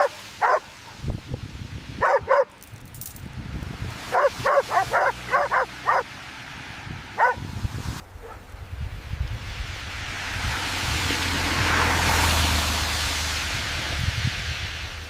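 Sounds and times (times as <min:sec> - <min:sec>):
dog barking: 0:00.0 - 0:00.8, 0:02.0 - 0:02.6, 0:04.1 - 0:06.1, 0:07.2 - 0:07.4, 0:08.2 - 0:08.4.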